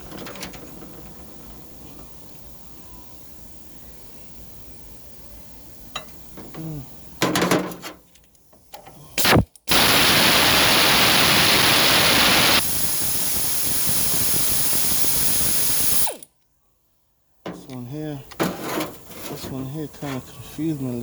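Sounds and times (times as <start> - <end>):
loud steady spraying hiss: 9.2 - 16.2.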